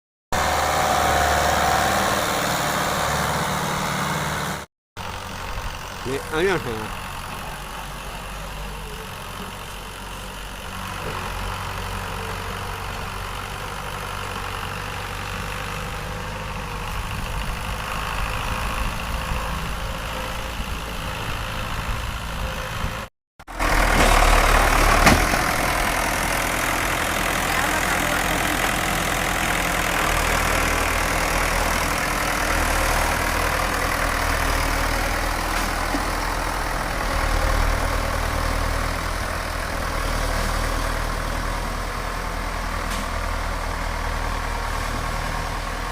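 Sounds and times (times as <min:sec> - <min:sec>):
tractor diesel engine running: 0:00.3 - 0:45.9.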